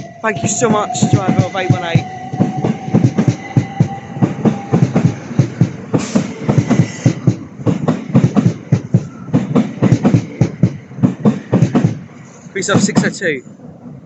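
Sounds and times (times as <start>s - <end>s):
train horn: 0.0s - 7.1s
train wheels clacking over rail joints: 2.4s - 13.4s.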